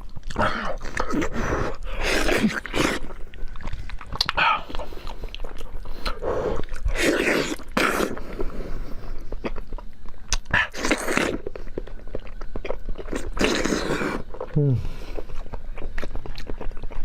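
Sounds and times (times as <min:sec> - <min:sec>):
chewing meat close up: 0:00.0 - 0:17.0
wet mouth clicks: 0:03.6 - 0:07.9.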